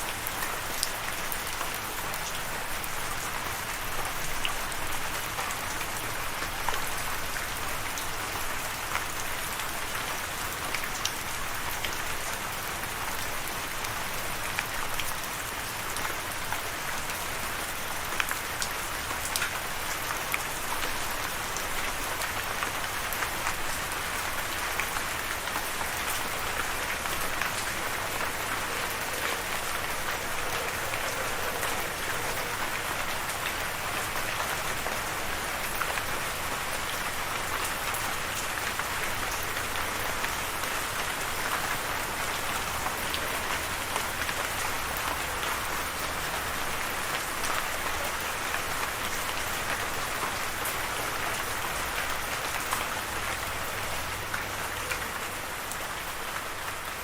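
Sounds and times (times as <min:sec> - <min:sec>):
steady rain hissing: 0:00.0 - 0:57.0.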